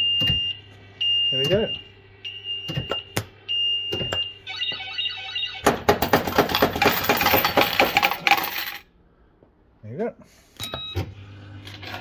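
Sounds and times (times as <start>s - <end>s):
warbling alarm-like jingle: 0.0s - 5.7s
coins clattering into tray: 6.0s - 8.9s.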